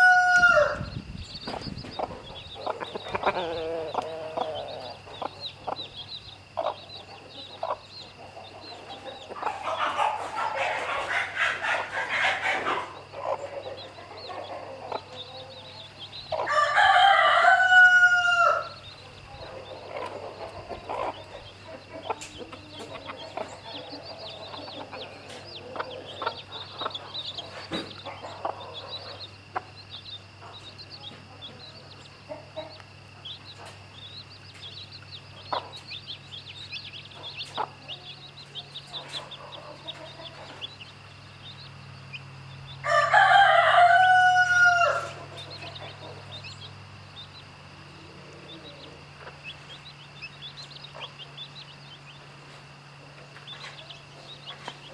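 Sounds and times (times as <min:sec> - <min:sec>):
rooster crowing: 0:00.0 - 0:01.0, 0:09.3 - 0:19.0, 0:42.7 - 0:46.4
chicks peeping: 0:00.0 - 0:54.9
hen clucking: 0:00.0 - 0:54.9.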